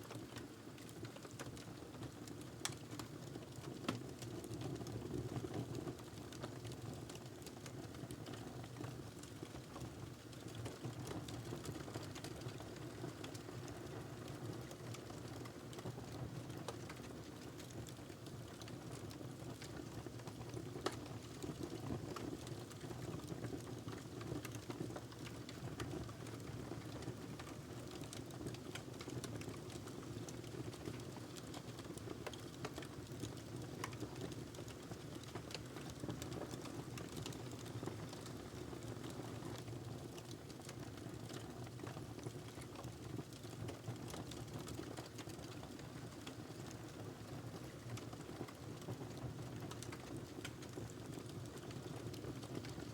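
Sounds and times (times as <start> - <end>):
wood fire crackling and popping: 0.1 - 52.9.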